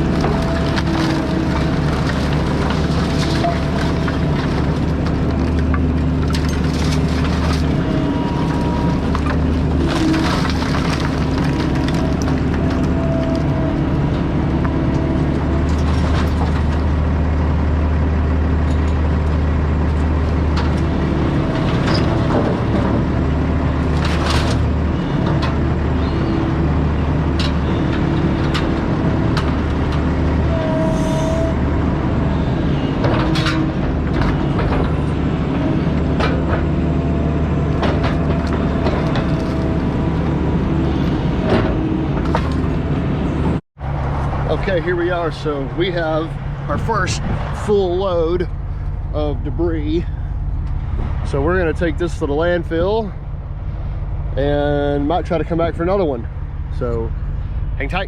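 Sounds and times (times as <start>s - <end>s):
wood cracking and knocking: 0.0s - 17.3s, 19.9s - 25.8s, 33.0s - 43.0s
excavator diesel engine running: 0.0s - 58.0s.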